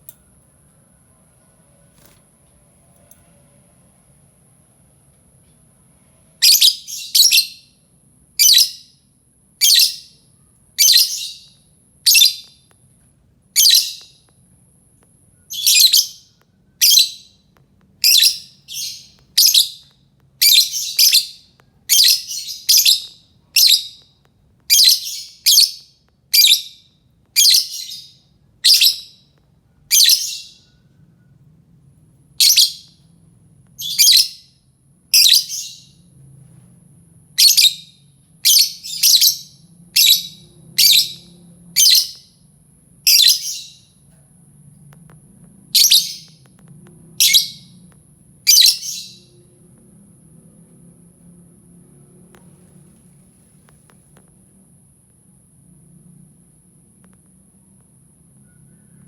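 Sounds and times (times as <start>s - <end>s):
lovebird shrill calls: 15.5s - 17.4s, 18.0s - 24.0s, 24.7s - 26.8s, 27.4s - 29.2s, 29.9s - 30.7s, 37.4s - 42.3s, 43.1s - 43.9s, 45.8s - 46.4s, 47.2s - 47.7s, 48.5s - 49.3s.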